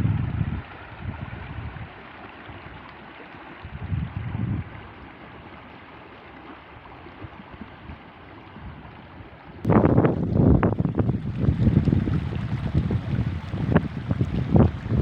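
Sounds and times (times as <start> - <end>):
wind buffeting microphone: 0.0 - 2.0, 3.6 - 5.0, 7.2 - 15.0
stream water flowing: 0.0 - 15.0.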